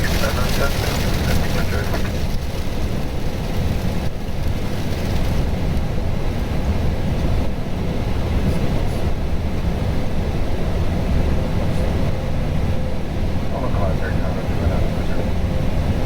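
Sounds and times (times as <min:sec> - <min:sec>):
airflow and engine rumble: 0:00.0 - 0:16.0.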